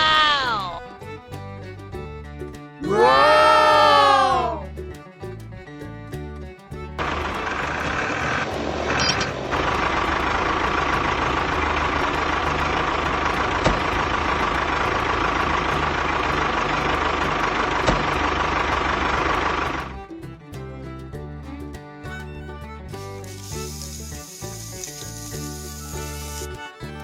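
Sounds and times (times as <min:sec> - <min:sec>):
truck-like engine running: 0:06.7 - 0:27.0.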